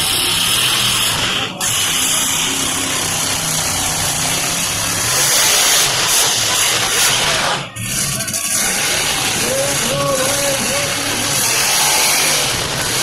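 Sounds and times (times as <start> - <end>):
monster truck engine running: 0.0 - 13.0.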